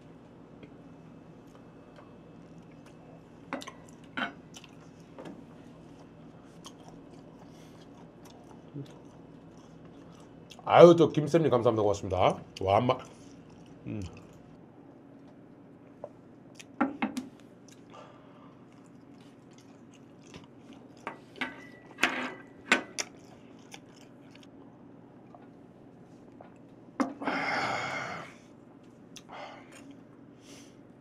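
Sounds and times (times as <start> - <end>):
man chewing with wet clicks: 1.4 - 5.2, 5.8 - 10.7, 12.5 - 14.6, 15.2 - 16.8, 17.4 - 21.1, 22.9 - 25.6, 28.8 - 30.1.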